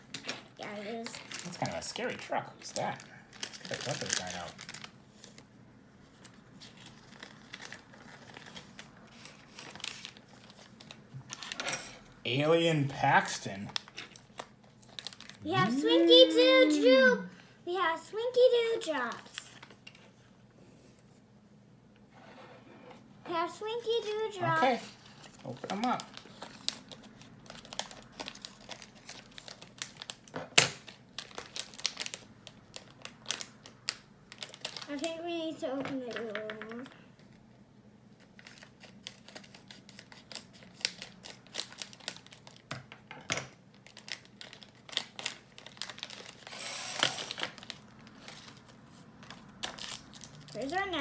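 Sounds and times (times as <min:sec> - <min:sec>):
plastic wrapper crinkling: 0:00.1 - 0:02.1, 0:02.7 - 0:05.5, 0:06.1 - 0:11.6, 0:13.6 - 0:15.4, 0:24.8 - 0:35.2, 0:38.2 - 0:42.7, 0:43.7 - 0:51.0.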